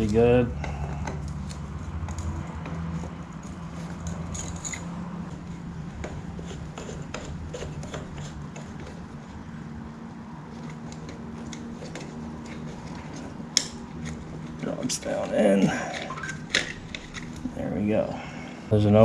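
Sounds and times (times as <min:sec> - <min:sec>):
steady low hum: 0:00.0 - 0:19.0
pliers metallic clicks and scrapes: 0:01.0 - 0:05.0.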